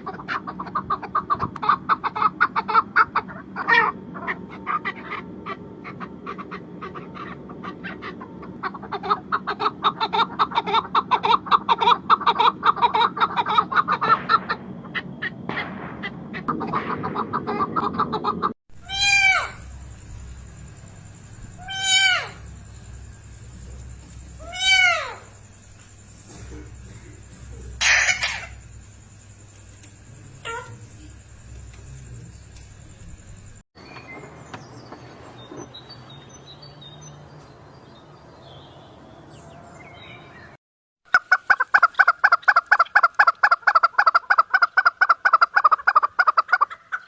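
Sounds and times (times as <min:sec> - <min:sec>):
chickens clucking: 0:00.0 - 0:18.6, 0:26.1 - 0:28.8, 0:41.1 - 0:47.0
short falling calls: 0:12.3 - 0:20.3, 0:21.5 - 0:28.9.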